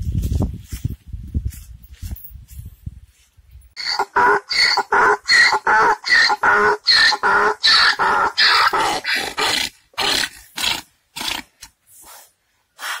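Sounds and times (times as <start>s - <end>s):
donkey braying: 3.8s - 11.4s.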